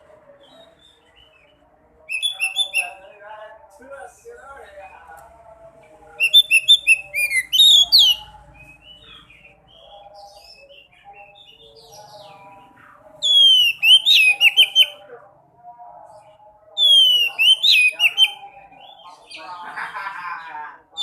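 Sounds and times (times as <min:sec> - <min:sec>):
birds warbling chatter: 0:00.0 - 0:05.1, 0:05.8 - 0:15.0, 0:16.2 - 0:21.0.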